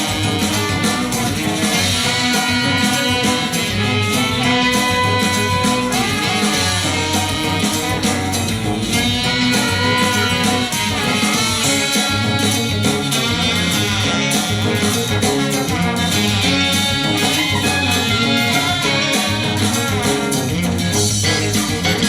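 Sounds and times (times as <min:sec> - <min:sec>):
music with steady beat on speakers: 0:00.0 - 0:22.0.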